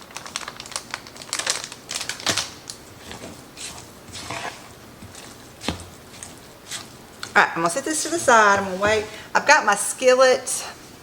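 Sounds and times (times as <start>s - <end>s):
spoon scraping batter in bowl: 3.0s - 9.1s.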